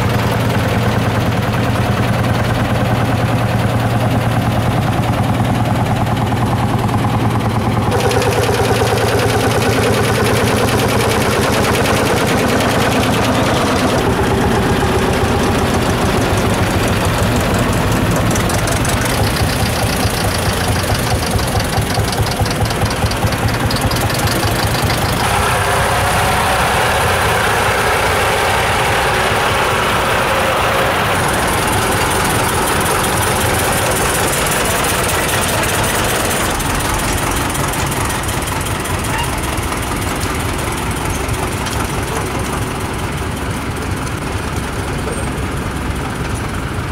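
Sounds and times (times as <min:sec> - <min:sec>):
tractor engines running: 0:00.0 - 0:46.9.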